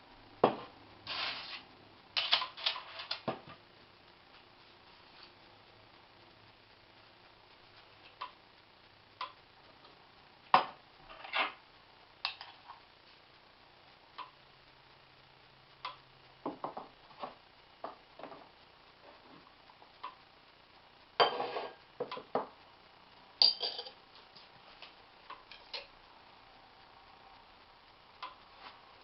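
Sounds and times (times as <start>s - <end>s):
kitchenware clattering: 21.2s - 21.8s, 23.4s - 24.0s
kitchenware clicking and clinking: 23.4s - 24.0s.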